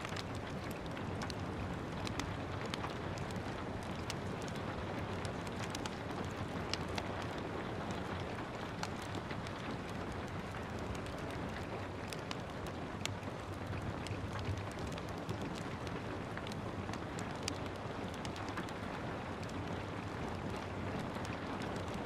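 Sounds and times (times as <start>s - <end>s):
gentle rain hissing: 0.0s - 22.0s
wood fire crackling: 0.0s - 22.0s.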